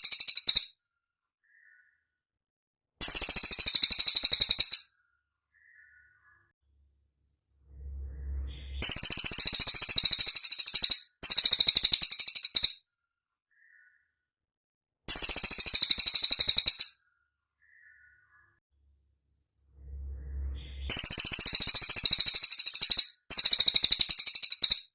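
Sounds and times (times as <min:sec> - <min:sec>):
birdsong: 0:01.4 - 0:02.2, 0:03.0 - 0:06.6, 0:07.7 - 0:12.7, 0:13.5 - 0:14.2, 0:15.1 - 0:18.6, 0:19.7 - 0:24.7
faint low rumble: 0:06.6 - 0:09.6, 0:18.8 - 0:21.7
low hum: 0:06.6 - 0:09.8, 0:18.8 - 0:21.9.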